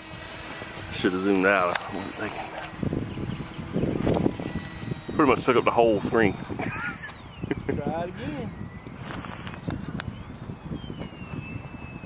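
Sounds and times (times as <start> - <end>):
model airplane motor whining: 0.0 - 12.0
wind buffeting microphone: 0.0 - 12.0
sharp clicks: 1.6 - 5.6.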